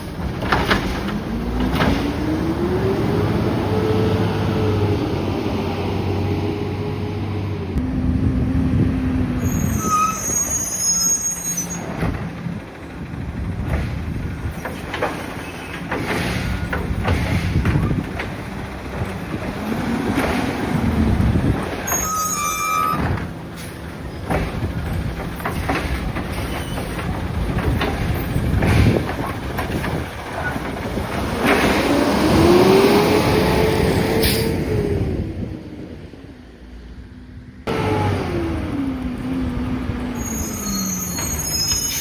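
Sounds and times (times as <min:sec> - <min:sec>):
knocks and clanks: 0:00.0 - 0:02.3, 0:11.8 - 0:22.0, 0:22.9 - 0:32.1
diesel truck engine revving: 0:00.1 - 0:10.0, 0:15.8 - 0:21.9, 0:22.8 - 0:36.3, 0:37.6 - 0:41.1
short high squeals: 0:09.4 - 0:11.9, 0:21.8 - 0:23.1, 0:40.2 - 0:42.0.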